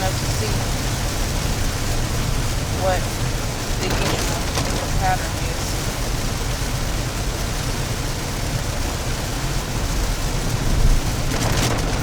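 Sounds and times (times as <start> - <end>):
rain on a moving car: 0.0 - 12.0
road and engine rumble: 0.0 - 12.0.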